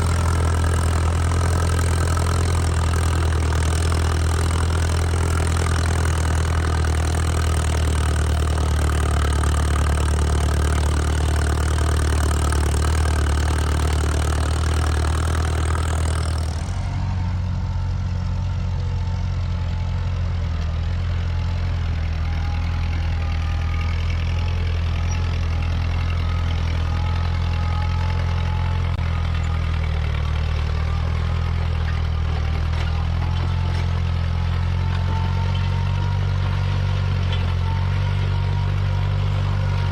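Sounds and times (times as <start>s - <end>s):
tractor engines droning: 0.0s - 39.9s.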